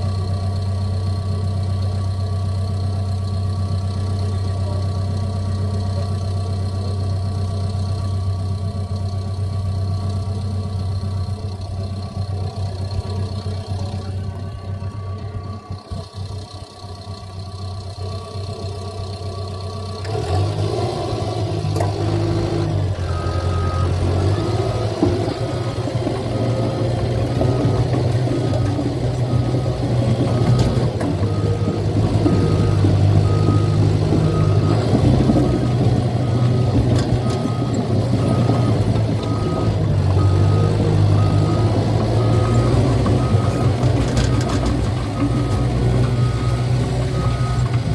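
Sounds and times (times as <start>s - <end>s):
bulldozer diesel engine running: 0.0s - 47.9s
tracks rattling: 20.1s - 47.9s
backup alarm beeping: 23.0s - 47.9s.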